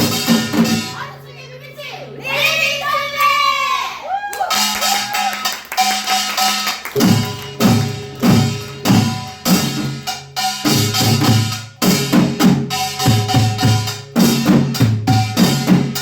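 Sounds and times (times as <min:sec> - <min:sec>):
heavy drum strokes: 0:00.0 - 0:01.1, 0:07.0 - 0:16.0
gongs and drums playing: 0:00.0 - 0:01.5, 0:04.4 - 0:16.0.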